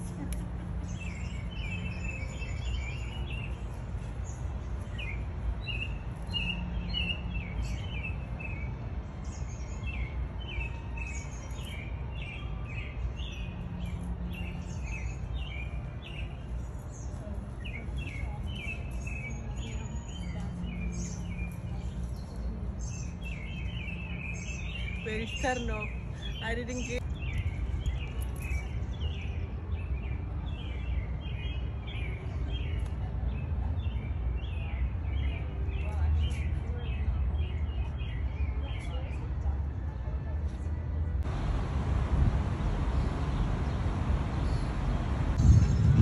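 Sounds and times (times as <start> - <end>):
songbirds chirping: 0.0 - 46.0
steady low rumble: 41.2 - 46.0.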